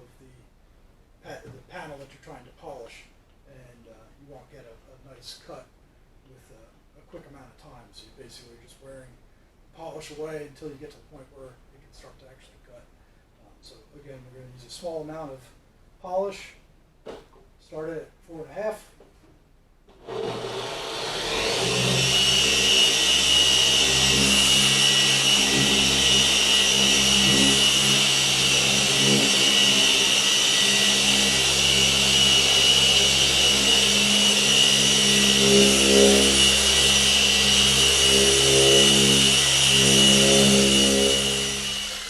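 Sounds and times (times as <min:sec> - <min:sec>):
polisher motor hum and whine: 0:19.9 - 0:42.0.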